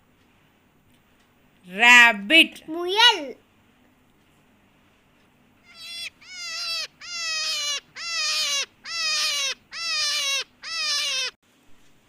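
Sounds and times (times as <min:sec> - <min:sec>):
rabbit squealing: 0:05.6 - 0:11.4.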